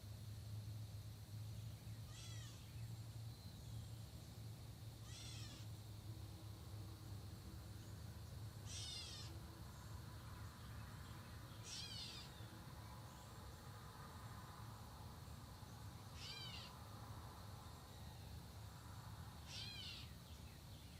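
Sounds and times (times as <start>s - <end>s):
bird mew-like call: 2.1s - 2.7s, 5.0s - 5.7s, 8.7s - 9.4s, 11.6s - 12.4s, 16.2s - 16.8s, 19.5s - 20.2s.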